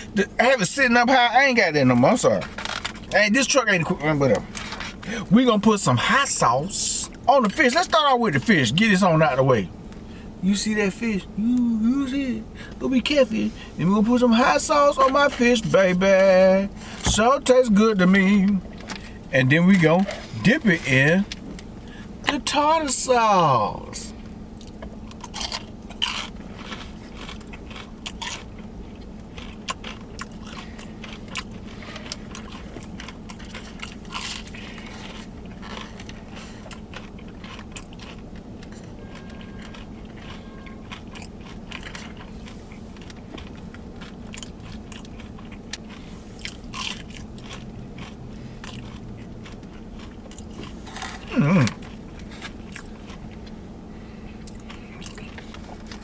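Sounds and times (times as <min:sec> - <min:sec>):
chewing crunchy fried food: 0:01.9 - 0:22.5, 0:24.1 - 0:56.0.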